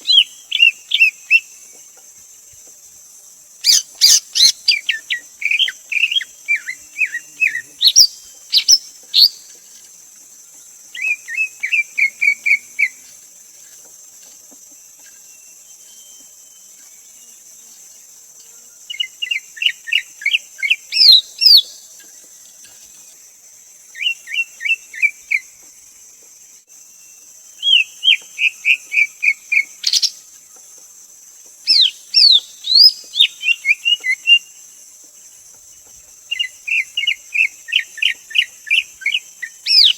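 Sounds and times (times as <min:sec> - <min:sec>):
steady high hiss: 0:00.0 - 0:39.9
bird singing chirps and whistles: 0:03.6 - 0:09.5, 0:18.9 - 0:21.7, 0:27.0 - 0:30.2, 0:31.7 - 0:34.5, 0:36.3 - 0:39.9.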